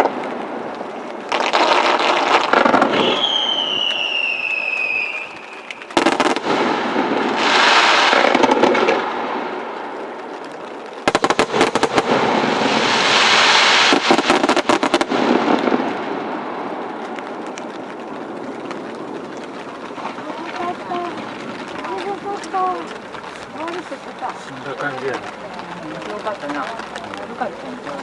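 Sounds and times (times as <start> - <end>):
fireworks bangs and crackles: 0.0 - 28.0
fizzing crackling showers: 0.0 - 28.0
firework falling whistle: 1.4 - 9.1.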